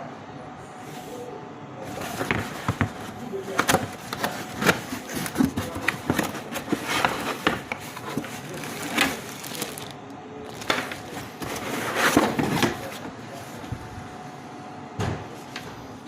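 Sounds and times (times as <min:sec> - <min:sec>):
packaging rustling and scraping: 0:01.8 - 0:13.2.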